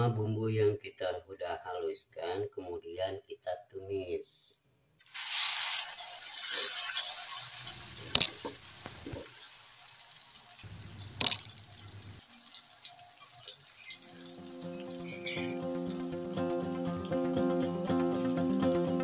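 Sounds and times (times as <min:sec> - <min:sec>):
paste sizzling in hot oil: 0:05.0 - 0:19.0.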